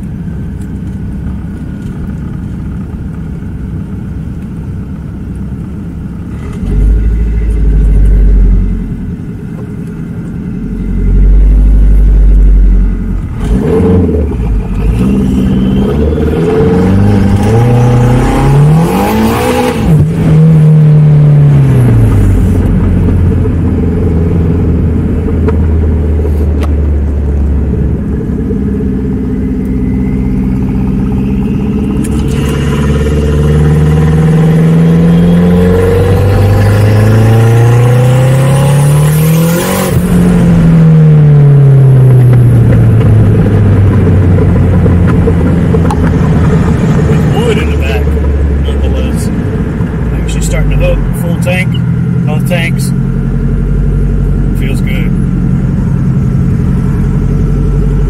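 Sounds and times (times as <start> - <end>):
high climbing whine: 0.0 - 58.0
car engine accelerating: 5.3 - 58.0.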